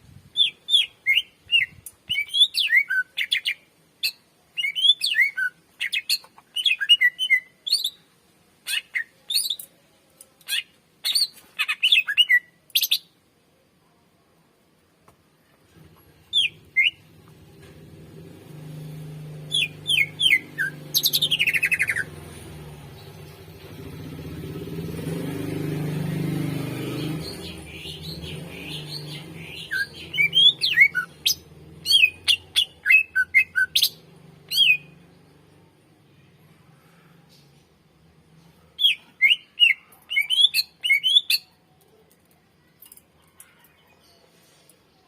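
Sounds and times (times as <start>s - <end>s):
bird whistled song and chirps: 0.4s - 8.0s, 8.7s - 9.7s, 10.5s - 13.1s, 16.3s - 17.0s, 19.5s - 22.1s, 27.0s - 35.0s, 38.8s - 41.5s.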